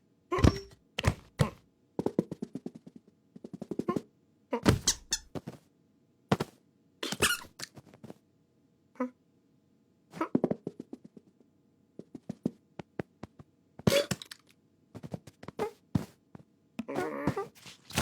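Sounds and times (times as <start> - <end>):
cartoon knocks and thuds: 0.3 - 2.5, 4.6 - 5.6
cartoon squeaks: 4.6 - 5.3, 7.0 - 7.7, 16.9 - 18.0.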